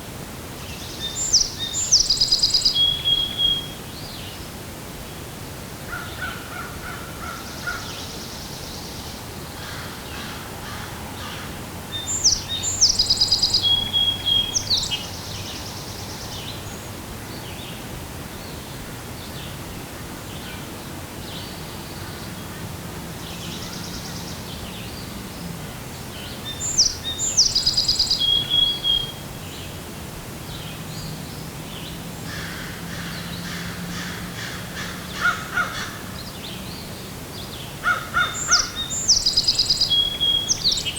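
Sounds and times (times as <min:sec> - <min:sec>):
songbird singing trills: 0:00.6 - 0:04.3, 0:11.9 - 0:17.7, 0:23.1 - 0:29.8, 0:36.2 - 0:40.9.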